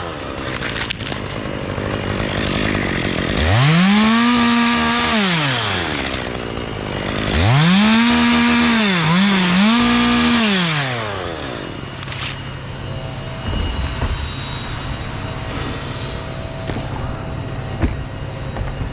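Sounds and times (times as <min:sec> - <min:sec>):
chainsaw revving: 0:00.0 - 0:12.4.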